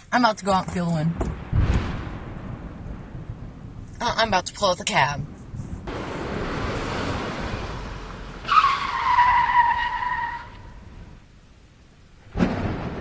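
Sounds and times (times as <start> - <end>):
car tyres screeching: 5.9 - 11.2
rushing noise: 5.9 - 11.2.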